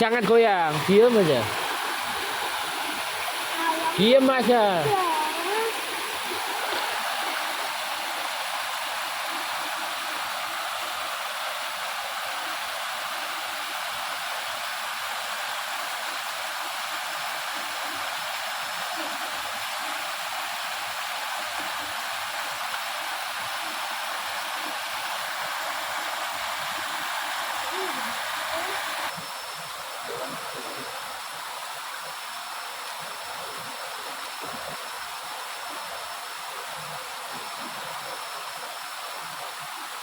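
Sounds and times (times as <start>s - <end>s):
river water rushing: 0.0s - 29.2s.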